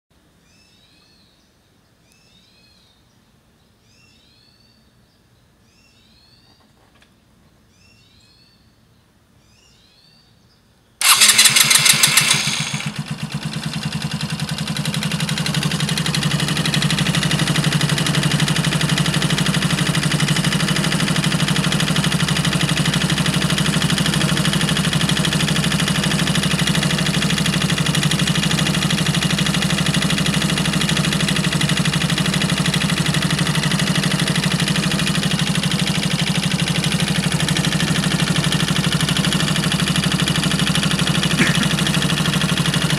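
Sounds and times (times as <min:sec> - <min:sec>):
scooter engine starting and idling: 0:11.0 - 0:42.9.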